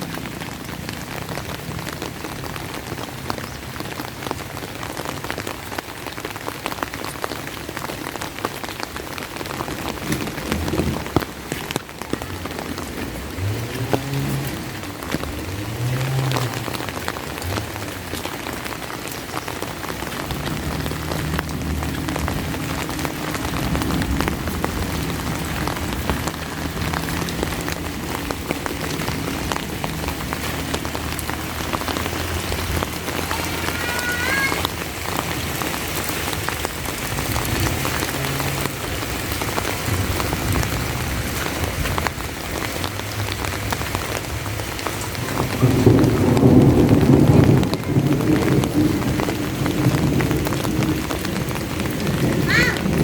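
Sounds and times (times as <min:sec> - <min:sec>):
rain drops pattering: 0:00.0 - 0:53.0.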